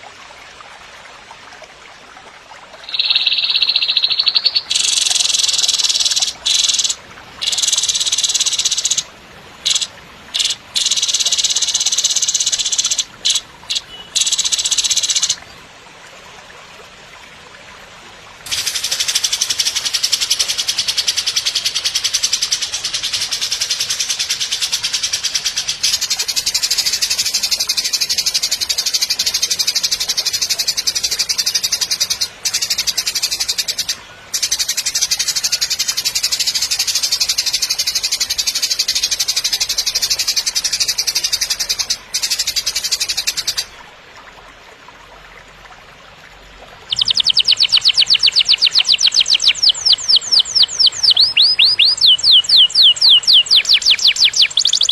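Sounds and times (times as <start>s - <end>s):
whistled bird song: 2.8s - 9.0s, 46.9s - 54.9s.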